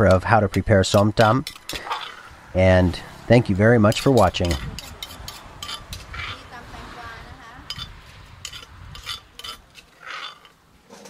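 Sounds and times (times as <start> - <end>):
utensils and dishes clinking: 0.0 - 2.3, 7.7 - 11.0.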